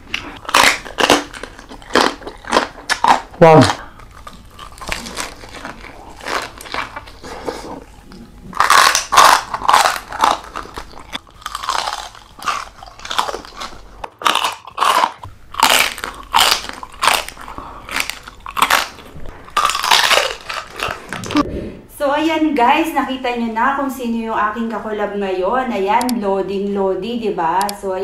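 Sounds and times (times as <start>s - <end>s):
crunchy chewing: 0.0s - 21.4s.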